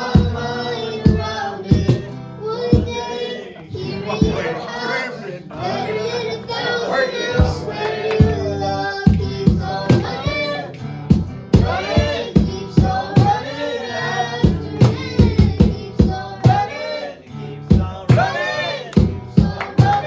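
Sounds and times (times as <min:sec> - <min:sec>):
voices singing: 0:00.0 - 0:20.0
drums and bass: 0:01.1 - 0:02.1, 0:09.1 - 0:10.5, 0:11.1 - 0:13.5, 0:14.4 - 0:16.7, 0:17.7 - 0:18.3, 0:19.0 - 0:20.0.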